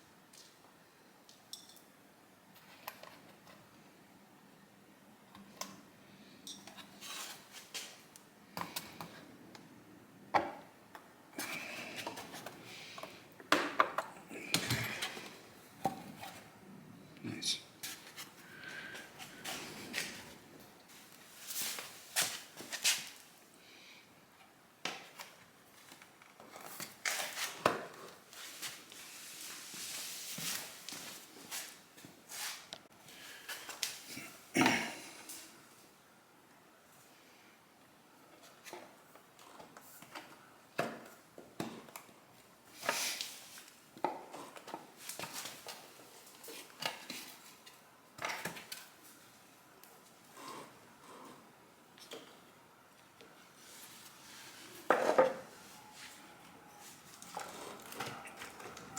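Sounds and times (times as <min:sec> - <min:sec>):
rustling handling noise: 0:17.8 - 0:23.4, 0:25.1 - 0:34.1.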